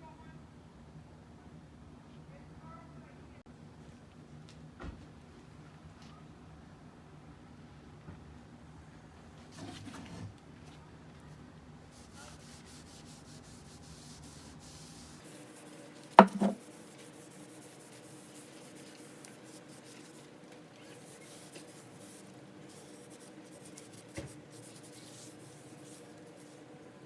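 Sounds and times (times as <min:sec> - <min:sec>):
faint rubbing: 0:11.9 - 0:26.6
sharp knock: 0:16.2 - 0:16.6.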